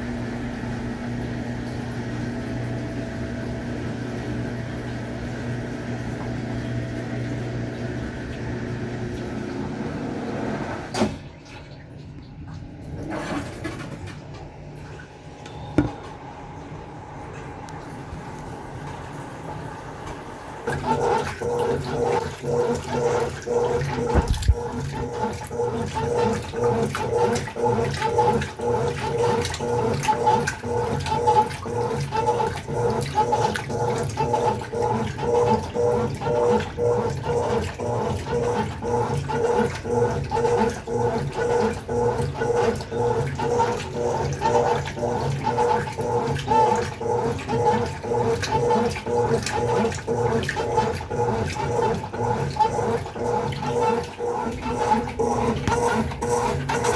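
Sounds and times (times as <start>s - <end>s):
washing machine motor hum: 0.0s - 56.9s
water sloshing: 21.0s - 56.9s.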